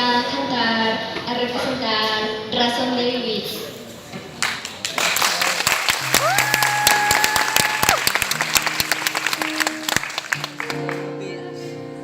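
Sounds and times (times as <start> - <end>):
audience applauding: 4.4 - 11.1
high held whoop: 6.1 - 8.1.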